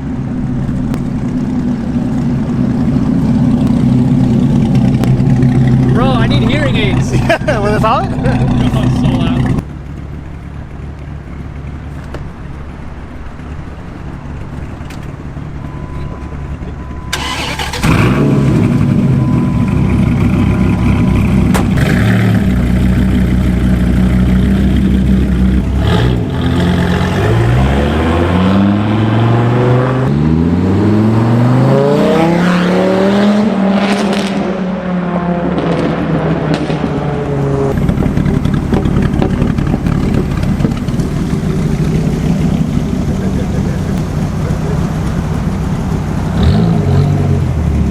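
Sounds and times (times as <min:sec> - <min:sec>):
car engine idling loudly: 0:00.0 - 0:25.9, 0:37.7 - 0:46.5
car engine revving: 0:00.0 - 0:47.9.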